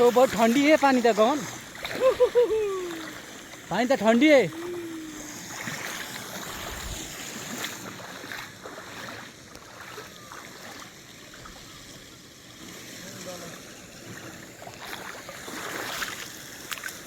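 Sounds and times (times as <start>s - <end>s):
water splashing around wading legs: 0.0s - 13.0s, 13.6s - 17.0s
wind on microphone: 6.5s - 7.2s.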